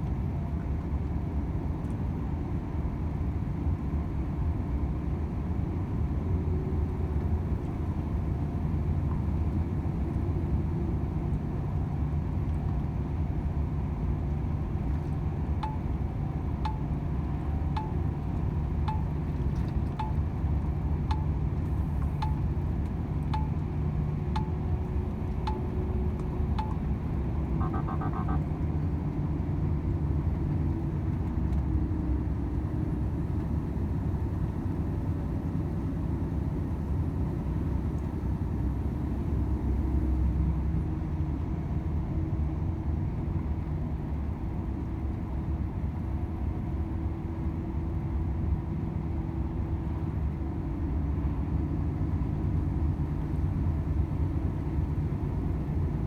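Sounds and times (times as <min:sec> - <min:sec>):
truck diesel engine droning: 0:02.9 - 0:42.0
turn signal ticking: 0:15.4 - 0:28.8
short dashboard chime: 0:27.6 - 0:28.6.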